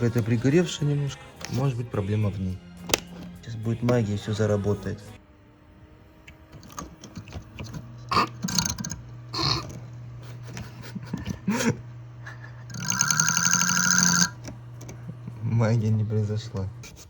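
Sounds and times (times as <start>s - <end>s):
computer fans humming: 3.1s - 17.0s
loud buzzing: 5.2s - 16.9s.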